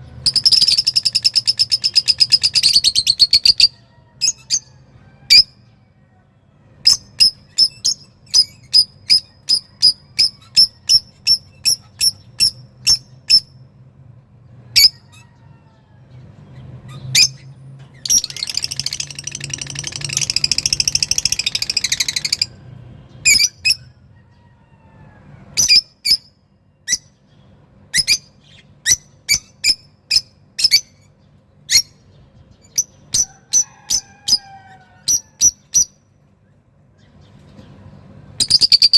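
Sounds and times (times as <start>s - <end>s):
fast rattling bird trill: 0.2s - 4.7s, 18.0s - 22.6s, 38.4s - 38.9s.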